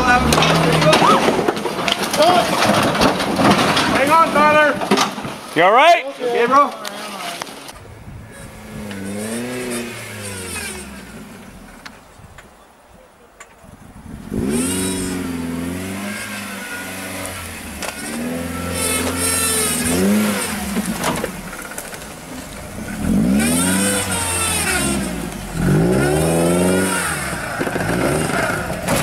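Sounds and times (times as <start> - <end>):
engine revving hard: 8.3 - 11.6, 14.2 - 21.7, 22.7 - 29.0.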